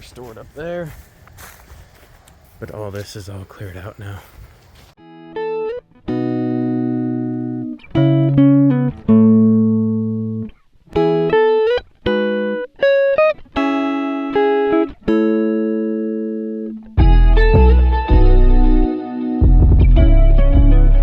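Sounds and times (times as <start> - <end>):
guitar chords strummed: 5.0 - 21.0.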